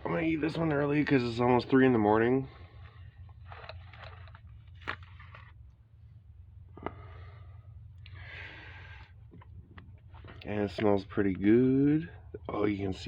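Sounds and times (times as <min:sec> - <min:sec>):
steady low hum: 0:00.0 - 0:13.0
person breathing: 0:06.8 - 0:09.3.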